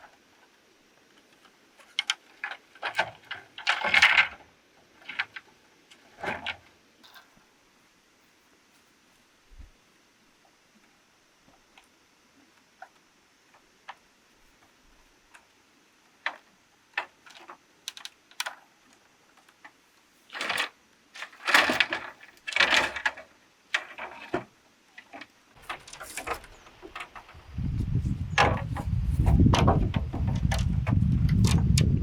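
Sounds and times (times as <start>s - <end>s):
rustling or scraping: 19.4s - 32.0s.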